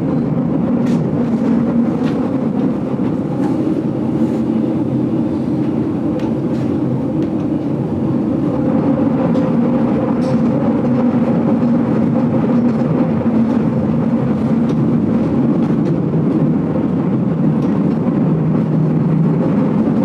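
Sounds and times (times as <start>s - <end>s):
train rumbling inside carriage: 0.0s - 20.0s
wheels clicking on rails: 0.8s - 11.8s.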